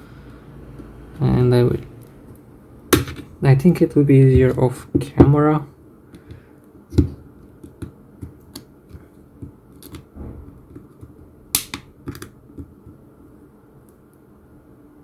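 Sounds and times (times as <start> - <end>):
plastic phone housing clips snapping: 11.6 - 12.3.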